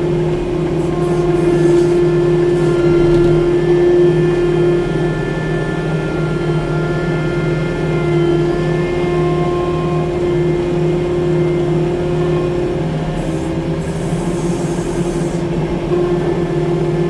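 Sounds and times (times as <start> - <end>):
diesel engine humming: 2.1 - 4.3.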